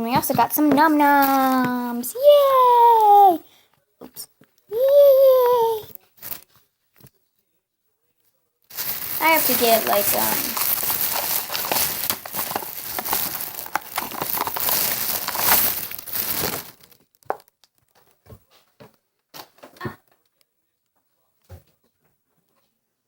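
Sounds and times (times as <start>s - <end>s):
plastic packaging crinkling and tearing: 0.9s - 2.6s, 6.2s - 6.5s, 8.7s - 17.2s.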